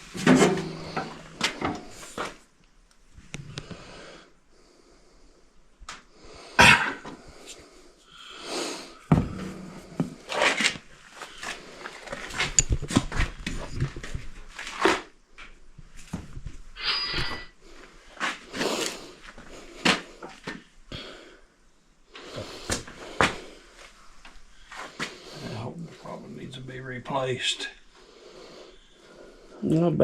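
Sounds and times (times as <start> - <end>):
hand tools and metal parts clanking: 12.1 - 13.2
brief high squeal: 16.8 - 17.5.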